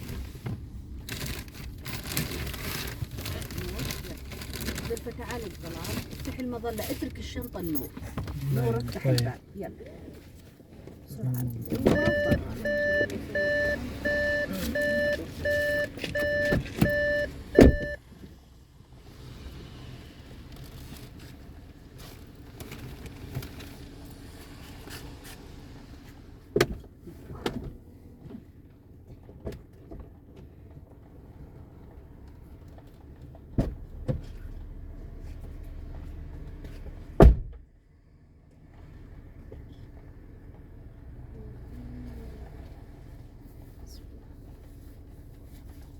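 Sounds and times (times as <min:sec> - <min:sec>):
car door shutting: 0:11.6 - 0:18.0, 0:37.1 - 0:37.7
car warning chime beeping: 0:11.7 - 0:18.0
loud thump: 0:37.2 - 0:37.6.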